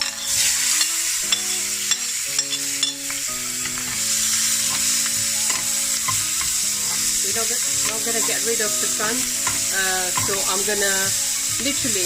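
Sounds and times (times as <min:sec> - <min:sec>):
vegetables sizzling in oil: 0:00.0 - 0:12.0
utensil scraping a pan: 0:03.7 - 0:11.0.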